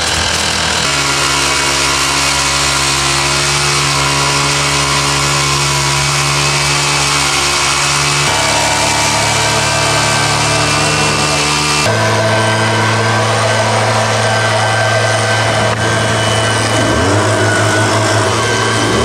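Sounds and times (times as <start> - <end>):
small gasoline engine running: 0.0 - 19.0.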